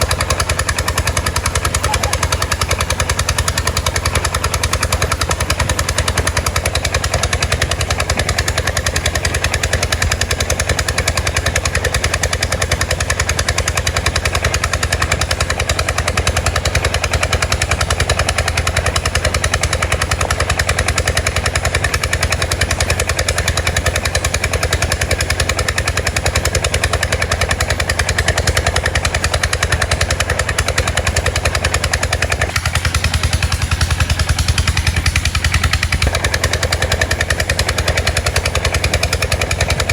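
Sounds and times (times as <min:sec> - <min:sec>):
unmuffled boat engine running: 0:00.0 - 0:39.9.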